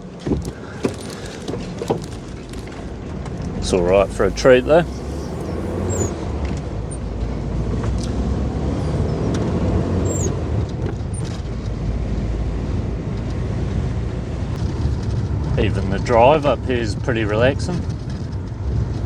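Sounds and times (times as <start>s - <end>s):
engine and road rumble: 0.0s - 19.0s
faint high squeaks: 0.4s - 6.2s.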